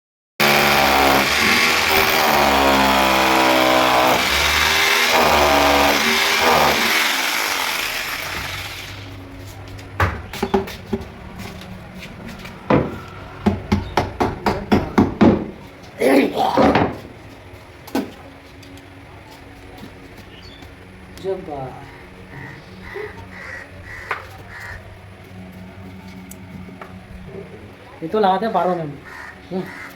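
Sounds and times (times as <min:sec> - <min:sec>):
hammering on wood: 0:10.0 - 0:11.1, 0:12.7 - 0:15.6.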